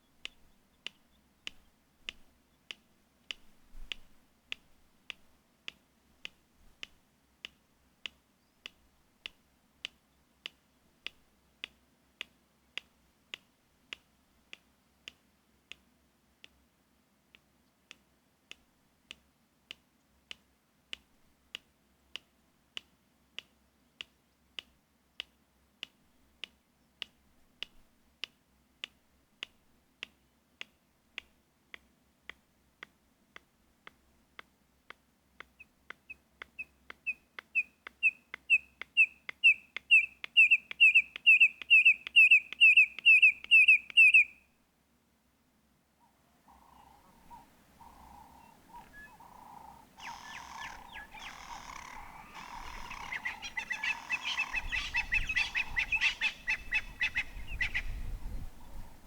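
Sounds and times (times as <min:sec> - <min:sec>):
bird clicks: 0:00.2 - 0:15.8, 0:22.2 - 0:44.2, 0:47.8 - 0:57.9
bird piping whistled notes: 0:36.6 - 0:44.5, 0:46.8 - 0:58.2.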